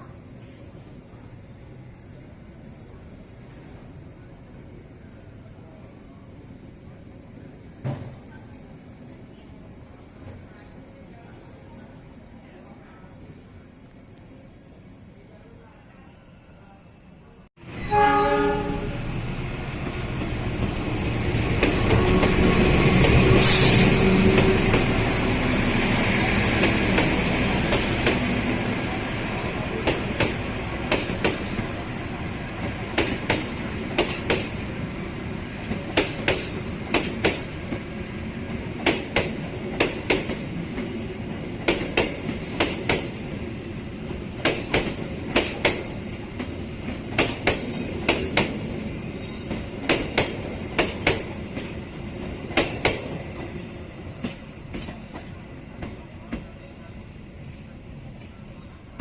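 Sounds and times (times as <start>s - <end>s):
train rumble: 17.6s - 59.0s
train horn: 17.8s - 19.1s.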